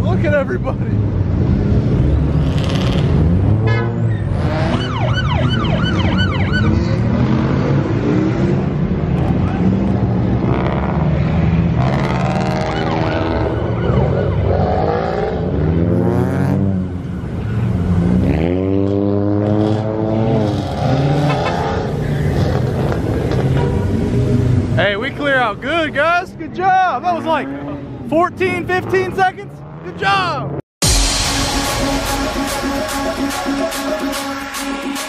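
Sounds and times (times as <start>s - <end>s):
car engines revving: 0.0s - 35.0s
police siren yelping: 4.6s - 6.9s, 12.5s - 15.3s.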